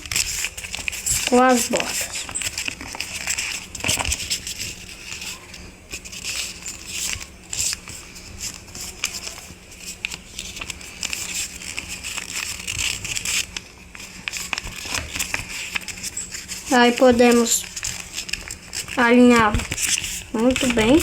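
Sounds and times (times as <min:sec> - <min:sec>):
paper crackling as folded: 0:00.0 - 0:21.0
paper rustling and crinkling: 0:00.0 - 0:21.0.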